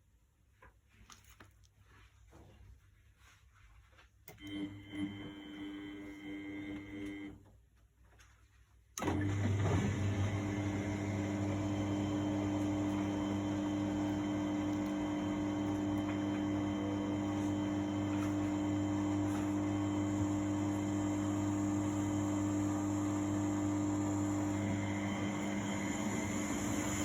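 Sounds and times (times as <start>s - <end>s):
washing machine motor humming: 4.3s - 7.4s, 9.0s - 27.0s.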